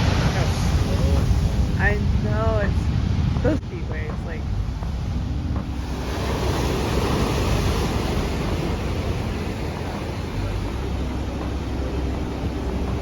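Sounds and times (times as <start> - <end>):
ocean wave breaking: 0.0 - 13.0.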